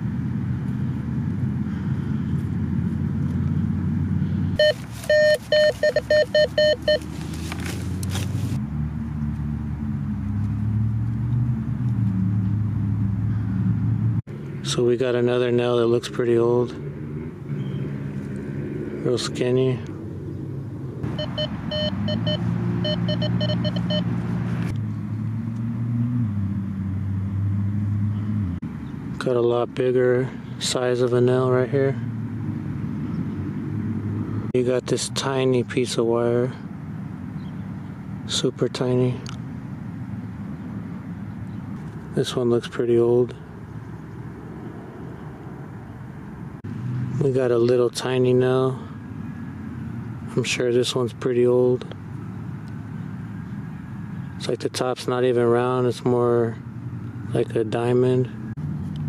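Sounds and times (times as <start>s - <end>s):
low traffic rumble: 0.0s - 59.0s
metal detector beeps: 4.6s - 7.2s, 21.1s - 24.1s.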